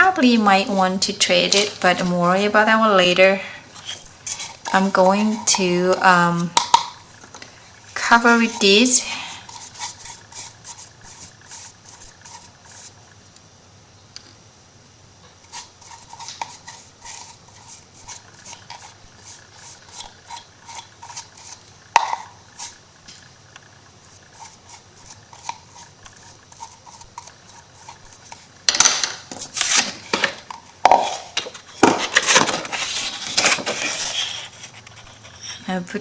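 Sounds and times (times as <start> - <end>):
hands rubbing paper on box: 3.8 - 6.6, 8.0 - 13.0, 15.5 - 21.6, 24.0 - 28.5
scraping rustling and knocking: 24.1 - 35.4.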